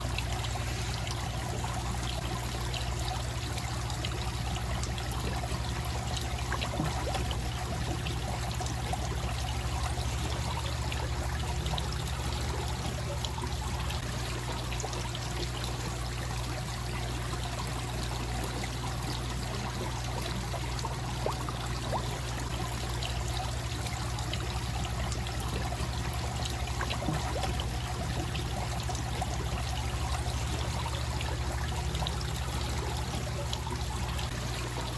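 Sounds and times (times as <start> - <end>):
waterfall splashing into pond: 0.0 - 34.9.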